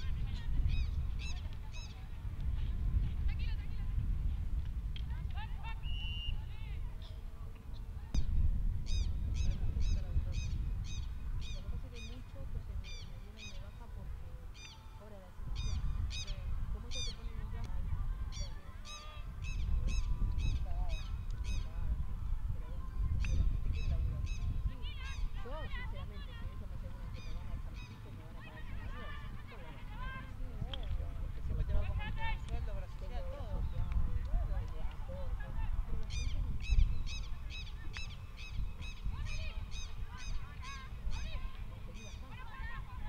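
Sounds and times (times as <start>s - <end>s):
birds calling shrilly: 36.0s - 42.6s.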